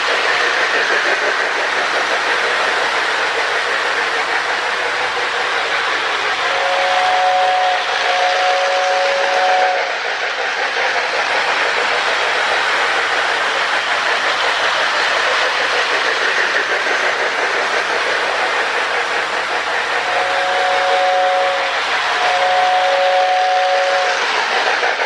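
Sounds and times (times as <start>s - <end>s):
toy train clattering on track: 0.0s - 25.0s
two-note train whistle: 6.4s - 9.9s, 20.0s - 24.2s.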